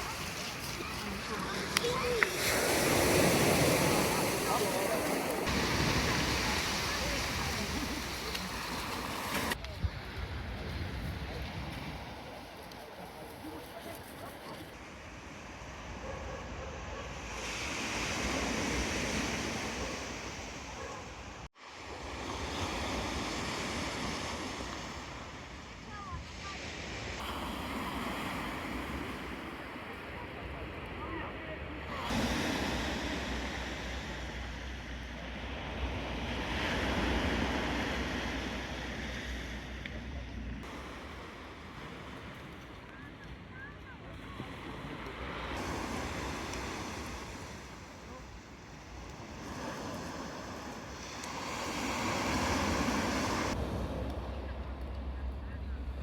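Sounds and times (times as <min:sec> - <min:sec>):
sea surf breaking: 0:00.0 - 0:12.5, 0:16.8 - 0:55.2
wind buffeting microphone: 0:00.0 - 0:12.6.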